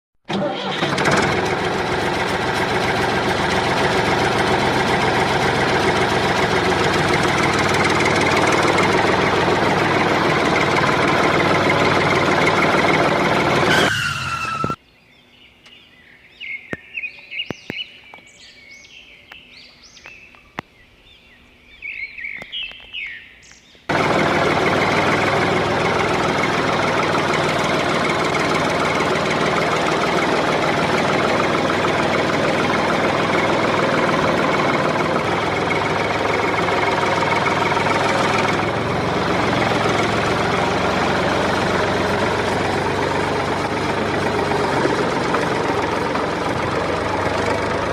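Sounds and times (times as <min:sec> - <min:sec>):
loud machine running: 0:00.3 - 0:14.7, 0:23.9 - 0:47.9
birds chirping: 0:14.4 - 0:24.0.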